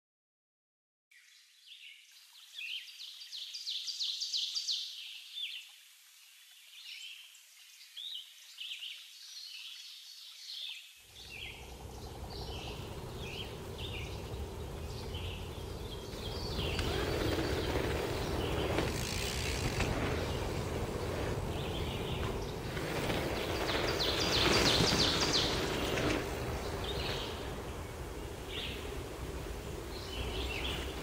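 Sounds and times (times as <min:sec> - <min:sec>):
small birds chirping: 0:06.6 - 0:31.0
low rumble: 0:11.1 - 0:31.0.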